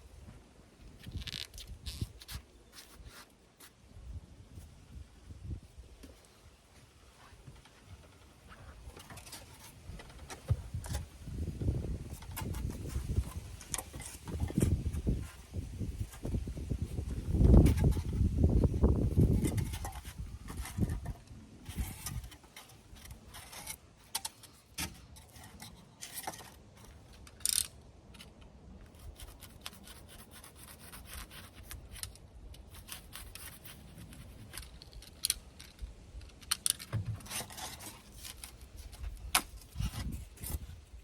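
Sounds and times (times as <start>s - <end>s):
rubbing and scraping: 0.9s - 3.8s, 5.5s - 41.0s.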